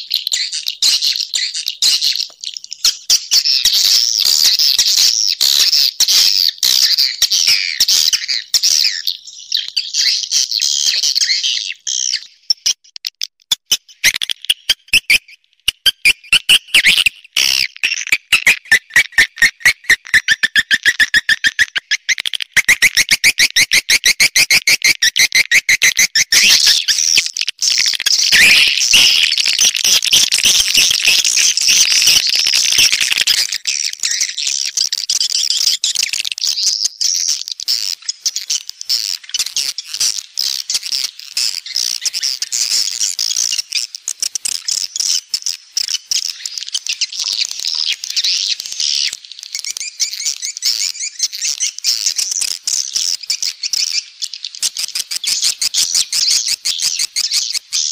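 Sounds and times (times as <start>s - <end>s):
swiftlets twittering chirps: 13.9s - 37.0s.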